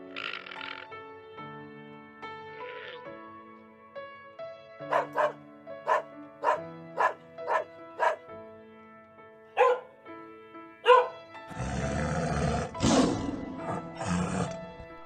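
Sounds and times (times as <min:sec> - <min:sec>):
background music with held notes: 0:00.0 - 0:15.0
dog barking: 0:04.9 - 0:08.3, 0:09.6 - 0:10.0, 0:10.8 - 0:11.2
tiger roaring: 0:10.9 - 0:15.0.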